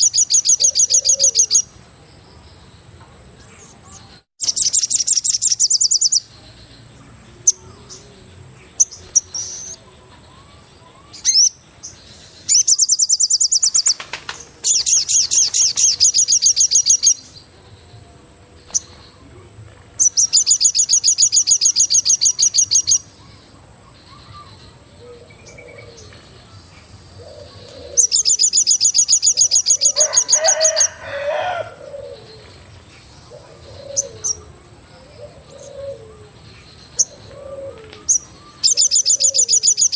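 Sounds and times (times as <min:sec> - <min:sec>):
bird high trill: 0:00.0 - 0:01.7, 0:27.3 - 0:32.3, 0:37.0 - 0:39.9.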